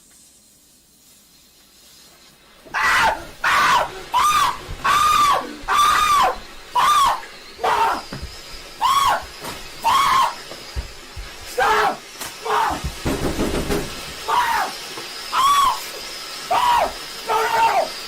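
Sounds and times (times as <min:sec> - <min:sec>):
faint hiss: 0:00.0 - 0:18.0
high-pitched shrieks: 0:02.7 - 0:08.2, 0:08.8 - 0:10.4, 0:11.6 - 0:12.9, 0:14.2 - 0:18.0.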